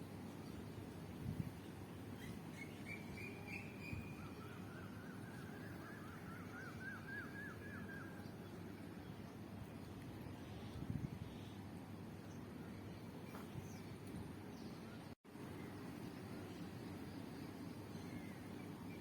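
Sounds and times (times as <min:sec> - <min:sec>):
songbird chirping: 0:02.1 - 0:10.6.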